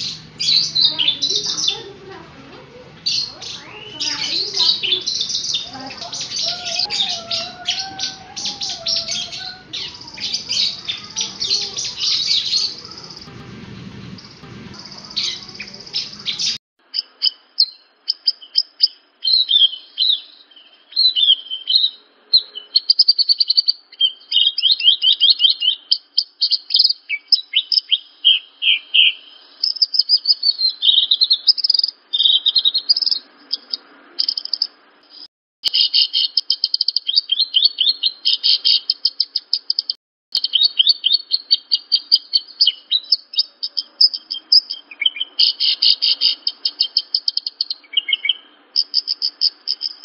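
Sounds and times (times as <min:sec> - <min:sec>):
low background rumble: 0:00.0 - 0:16.6
bird song with chirps and trills: 0:00.0 - 0:50.0.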